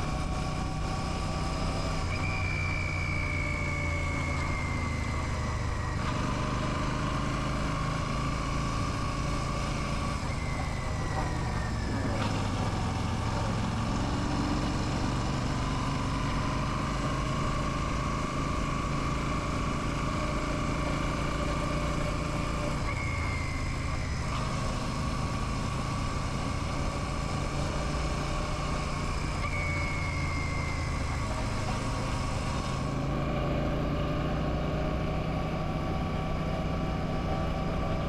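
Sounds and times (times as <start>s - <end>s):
motorcycle engine running: 0.0s - 38.0s
faint high tone sliding down: 0.2s - 6.8s, 19.9s - 32.8s.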